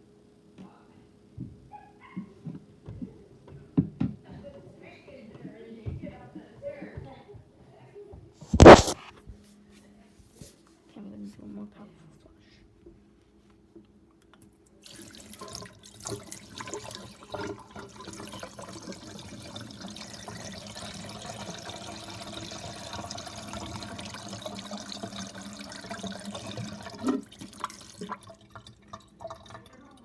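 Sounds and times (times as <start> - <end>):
water rushing into toilet: 8.5 - 9.1, 14.9 - 30.0
sharp knock: 8.6 - 9.1.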